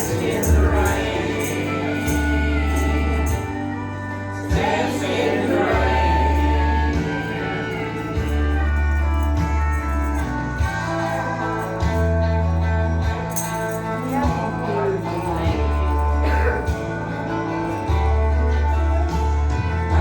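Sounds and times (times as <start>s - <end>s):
singing: 0.0s - 9.5s
long held bass notes: 0.0s - 20.0s.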